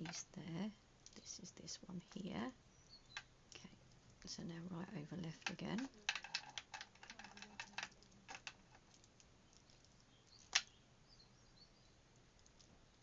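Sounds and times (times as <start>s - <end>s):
beads and cord clicking: 5.2s - 10.8s.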